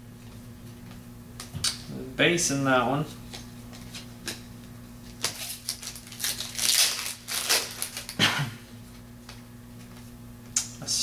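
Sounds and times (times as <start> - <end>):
foil wrapper crinkling: 5.2 - 8.2.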